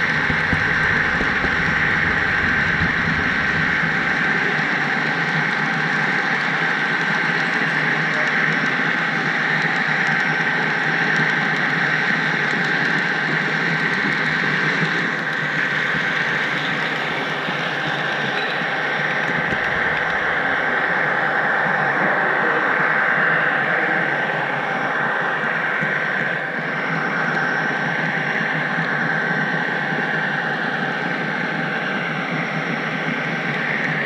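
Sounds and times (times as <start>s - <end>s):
thin high whine: 0.0s - 7.0s
model train wheels on rail: 0.0s - 23.9s.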